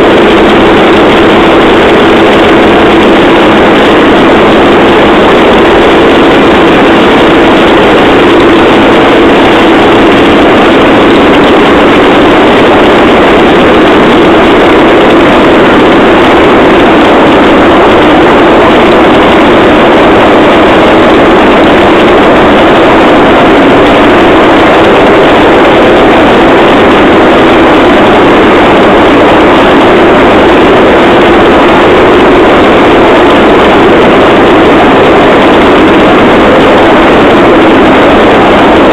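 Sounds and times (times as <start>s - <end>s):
rail trolley engine drone: 0.0s - 38.9s.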